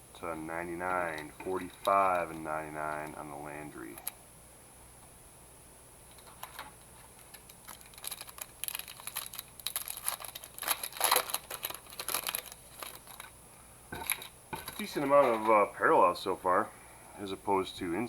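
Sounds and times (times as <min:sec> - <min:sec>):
crinkling and rustling: 0:00.2 - 0:04.2, 0:06.0 - 0:15.7.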